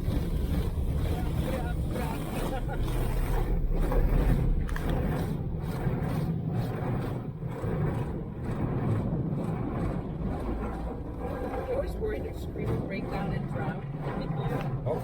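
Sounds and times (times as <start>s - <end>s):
car wash machinery rumbling: 0.0s - 15.0s
water spraying on car body: 0.0s - 15.0s.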